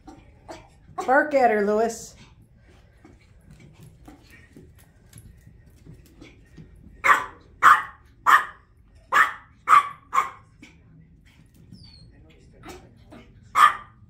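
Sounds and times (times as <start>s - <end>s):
dog barking: 7.0s - 10.5s, 13.5s - 14.0s.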